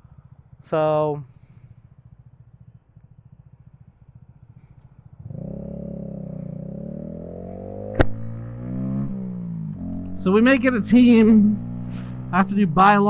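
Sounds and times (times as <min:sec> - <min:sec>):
motorcycle engine revving: 0:01.3 - 0:13.0
sharp click: 0:07.9 - 0:08.3.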